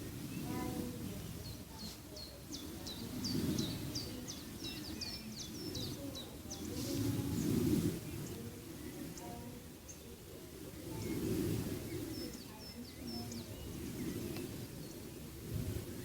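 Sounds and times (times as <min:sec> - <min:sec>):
low rushing background noise: 0:00.0 - 0:16.0
songbird chirping: 0:00.0 - 0:16.0.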